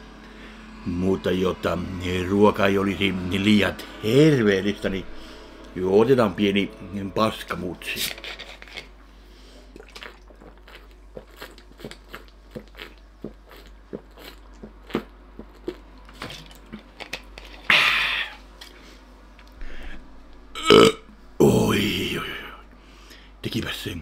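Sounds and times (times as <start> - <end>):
man chewing with wet smacks: 9.7 - 17.7.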